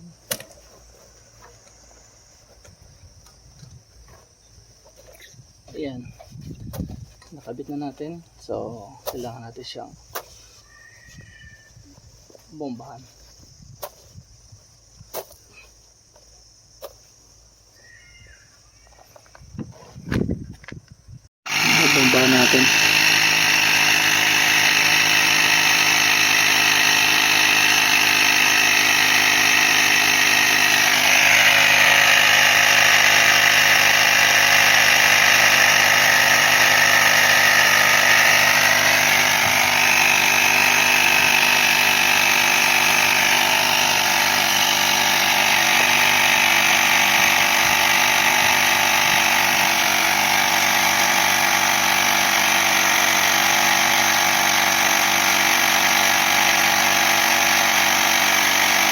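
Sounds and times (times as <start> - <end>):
air compressor running: 21.4 - 58.9.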